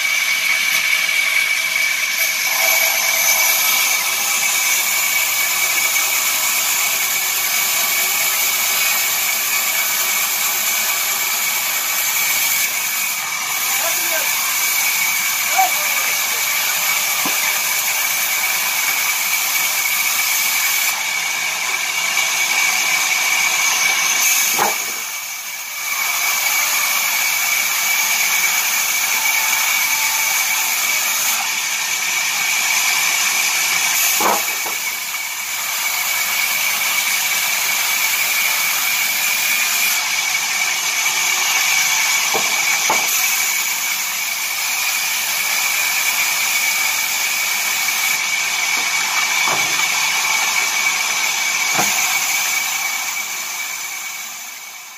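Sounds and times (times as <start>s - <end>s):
sawmill saw hissing and whining: 0.0s - 54.9s
short knocks: 49.5s - 49.9s, 51.7s - 52.1s.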